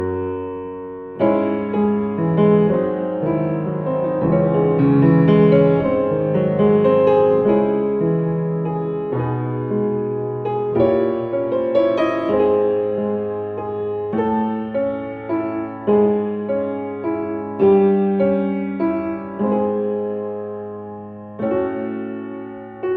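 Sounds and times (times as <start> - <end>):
gentle piano music: 0.0 - 22.9.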